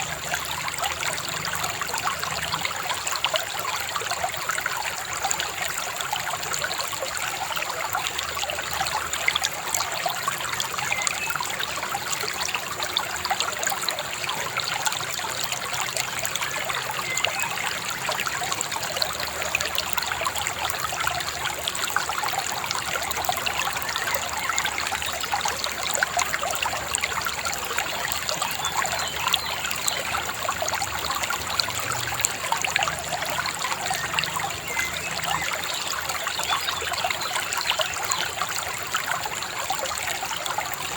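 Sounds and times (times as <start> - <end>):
shallow river babbling: 0.0 - 40.9.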